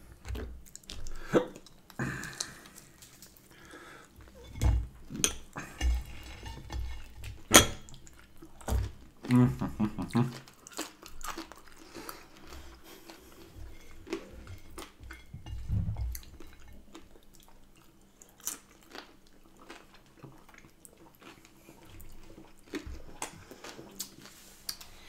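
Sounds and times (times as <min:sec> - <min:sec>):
person chewing food: 0:00.0 - 0:25.0.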